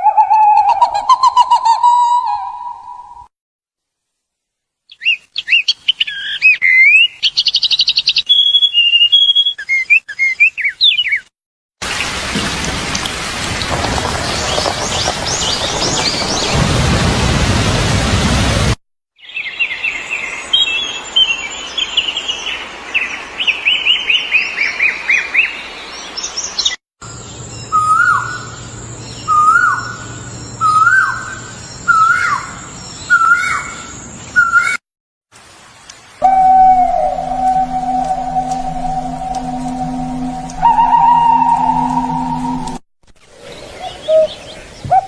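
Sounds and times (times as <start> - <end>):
rain: 11.8 - 26.8, 35.3 - 44.9
faint high whine: 36.2 - 42.8.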